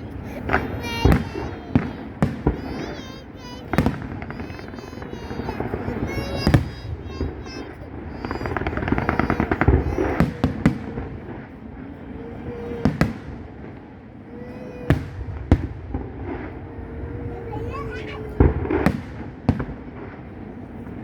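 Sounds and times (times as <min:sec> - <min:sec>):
firework shells bursting: 0:00.0 - 0:11.4
firework crackling: 0:00.0 - 0:21.0.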